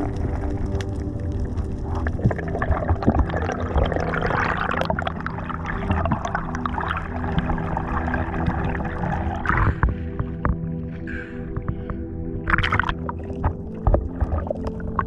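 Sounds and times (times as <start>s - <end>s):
small clicks and pops: 0.0s - 5.3s, 8.4s - 10.8s, 11.4s - 15.0s
steady low drone: 0.0s - 15.0s
water splashing and bubbling: 0.0s - 15.0s.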